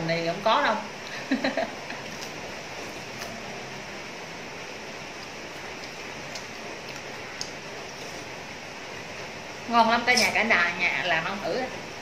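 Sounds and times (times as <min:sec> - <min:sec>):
person chewing crispy food: 0:01.9 - 0:03.6, 0:04.8 - 0:08.6.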